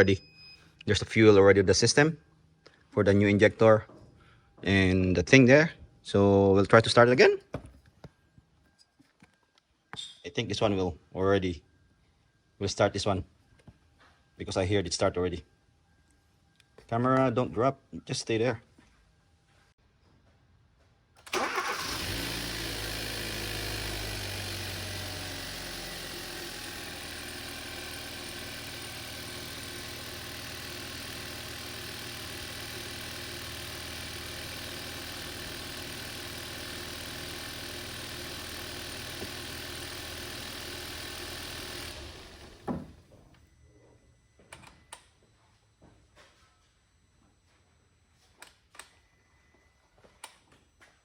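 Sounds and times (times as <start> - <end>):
car engine starting and idling: 21.2 - 43.1
thump: 42.6 - 43.0.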